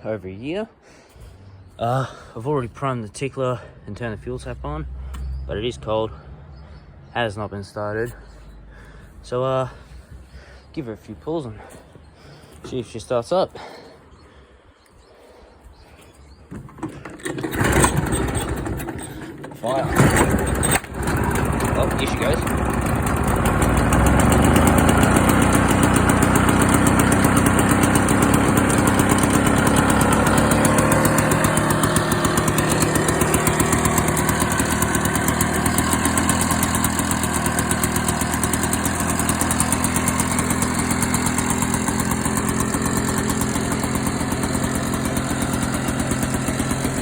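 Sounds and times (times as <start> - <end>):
lawn mower engine running: 16.5 - 47.0.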